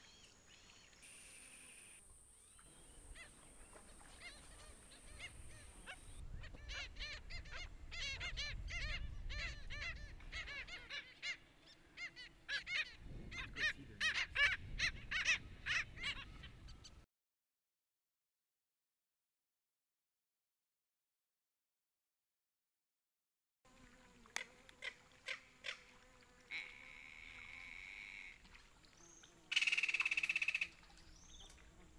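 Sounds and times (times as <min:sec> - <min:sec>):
birds short repeated calls: 0:29.2 - 0:31.6.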